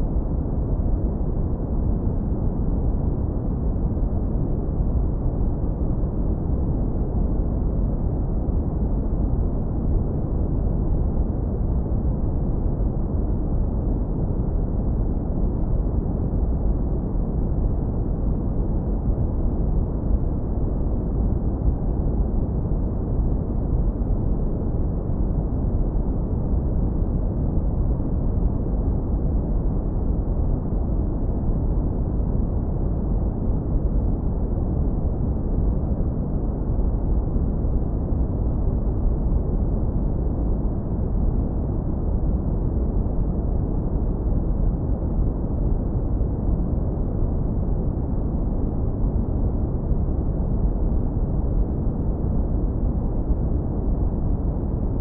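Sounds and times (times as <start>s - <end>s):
deep filtered brown noise: 0.0s - 55.0s.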